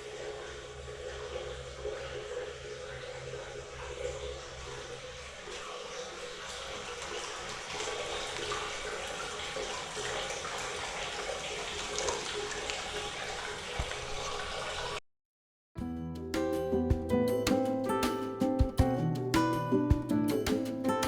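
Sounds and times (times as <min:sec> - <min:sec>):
water pouring into a bath: 0:00.0 - 0:15.0.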